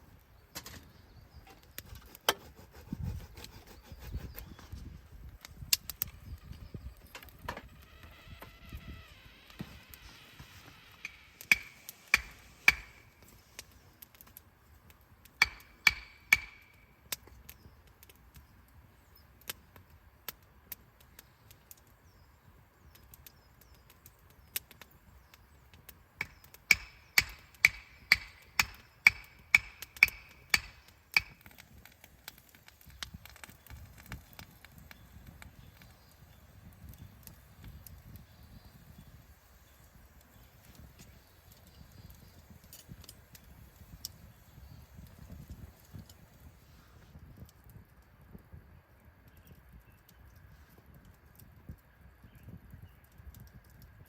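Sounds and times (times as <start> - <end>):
firewood being chopped: 0.5 - 4.7, 10.4 - 14.4, 15.2 - 18.4, 24.4 - 38.2.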